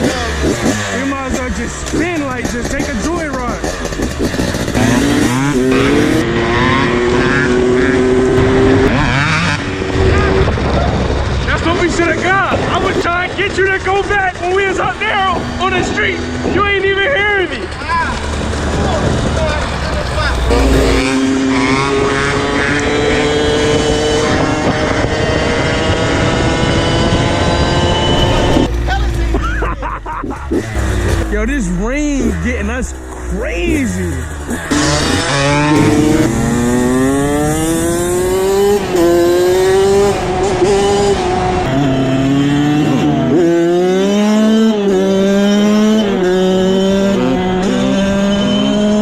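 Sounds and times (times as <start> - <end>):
motorbike engine running: 0.0 - 6.2
motorbike engine accelerating: 0.0 - 49.0.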